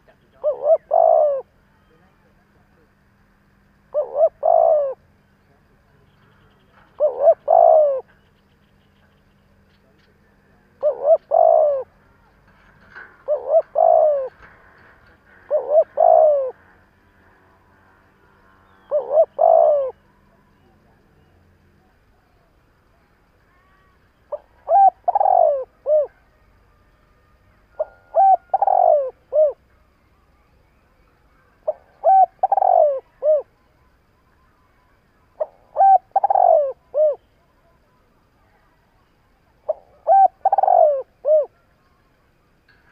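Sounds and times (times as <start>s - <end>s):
dove cooing: 0.0s - 1.6s, 3.9s - 5.1s, 6.7s - 8.2s, 10.6s - 16.8s, 18.6s - 20.0s, 24.3s - 26.4s, 27.7s - 29.7s, 31.4s - 33.6s, 35.3s - 37.3s, 39.6s - 41.7s.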